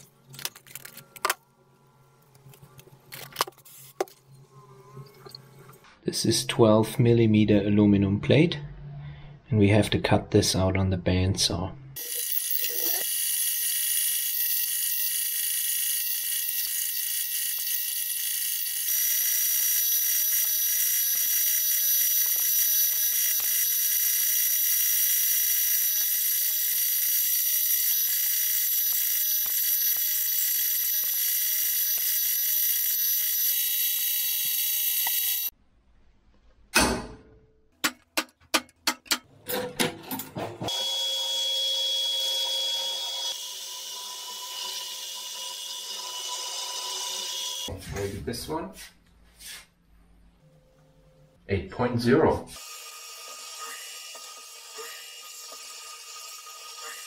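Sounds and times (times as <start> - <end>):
bandsaw cutting metal: 12.0 - 35.5, 40.7 - 47.7, 52.5 - 57.0.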